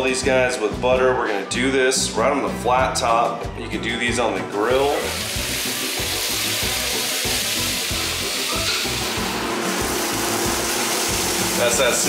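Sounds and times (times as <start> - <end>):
background music: 0.0 - 12.0
food sizzling in a pan: 4.8 - 12.0.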